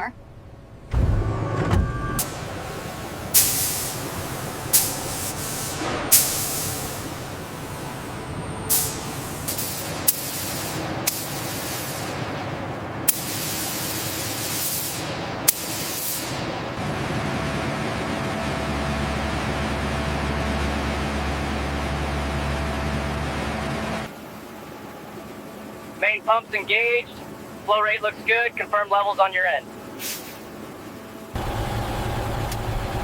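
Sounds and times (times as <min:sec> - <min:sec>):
bursts of rushing air: 0:02.2 - 0:12.2
steady hiss: 0:02.2 - 0:12.3, 0:13.0 - 0:16.5.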